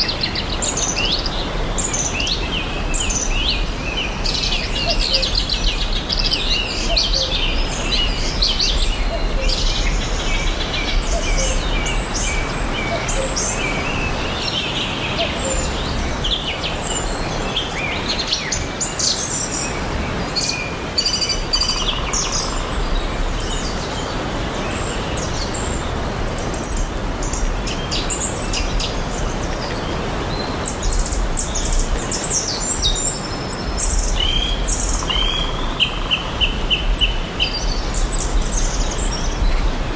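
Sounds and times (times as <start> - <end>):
forest and lake ambience hiss: 0.0 - 39.9
songbirds chirping and trilling: 0.0 - 39.9.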